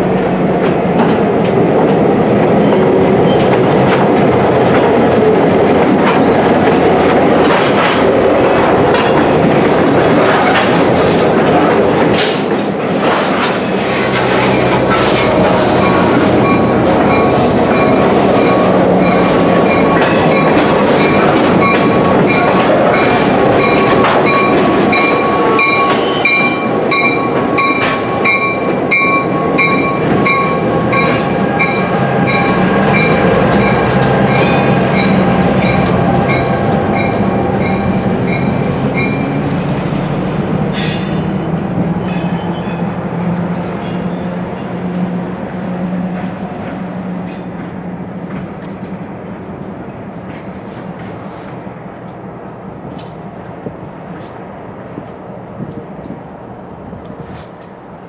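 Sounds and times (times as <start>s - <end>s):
diesel locomotive engine: 0.0s - 58.0s
wheels clacking over rail joints: 0.1s - 39.8s
high wheel squeal: 14.4s - 28.1s.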